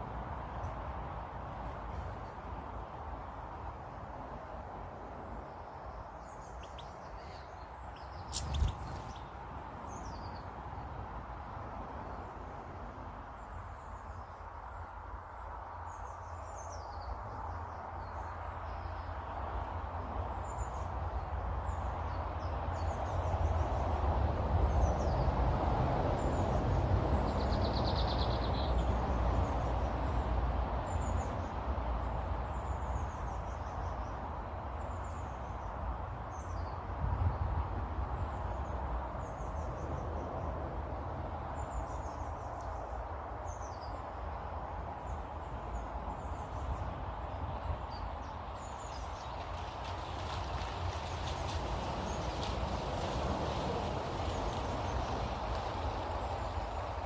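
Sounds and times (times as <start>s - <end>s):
small birds chirping: 5.4s - 10.9s.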